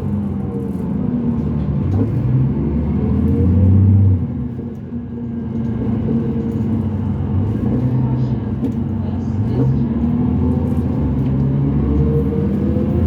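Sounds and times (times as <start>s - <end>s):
bus diesel engine pulling under load: 0.0s - 13.0s.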